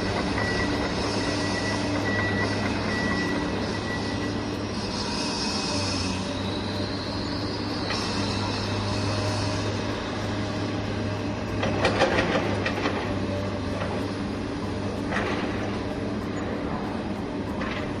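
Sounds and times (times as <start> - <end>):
steady mechanical hum: 0.0 - 18.0
rattling clatter: 11.3 - 18.0.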